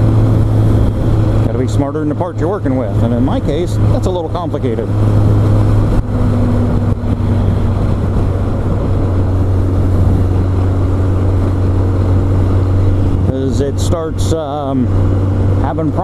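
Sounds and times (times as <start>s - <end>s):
motorcycle engine drone: 0.0s - 16.0s
wind noise rushing: 3.2s - 15.6s.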